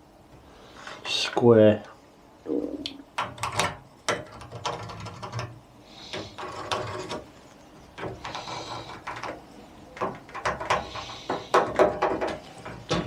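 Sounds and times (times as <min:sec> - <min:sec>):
small clicks and knocks: 0:03.2 - 0:13.0.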